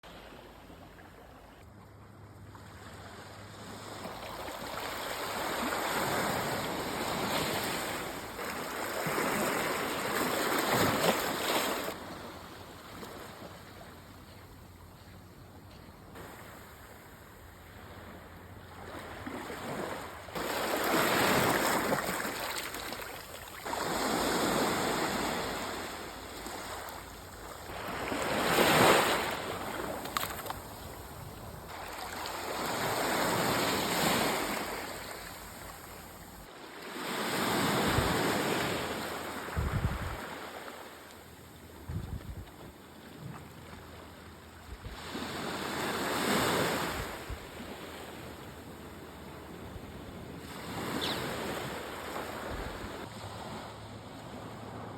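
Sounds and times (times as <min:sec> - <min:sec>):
sea waves breaking on beach: 0:03.9 - 0:12.4, 0:18.8 - 0:30.8, 0:31.7 - 0:41.1.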